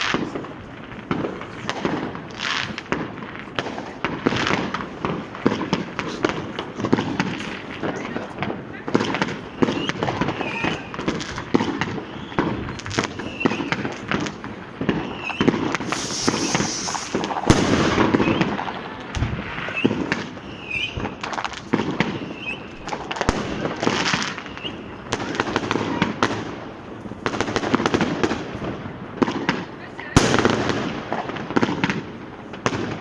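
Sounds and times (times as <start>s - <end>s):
firecrackers banging and crackling: 0.0s - 33.0s
rockets whistling: 9.0s - 26.2s
hissing burst: 15.1s - 18.6s.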